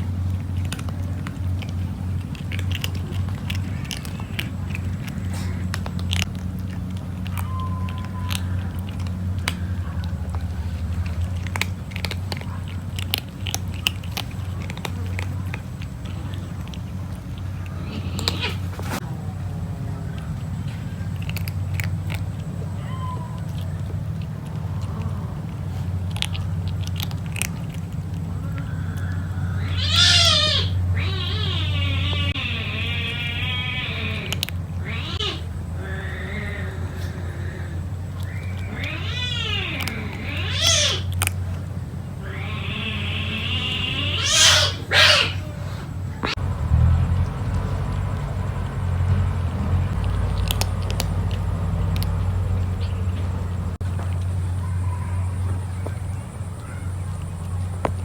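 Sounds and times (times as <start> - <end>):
kitten chewing food: 0.0 - 42.6, 43.7 - 58.0
steady low hum: 0.0 - 58.0
kitten meowing: 29.6 - 36.5, 38.6 - 41.1, 42.2 - 45.5.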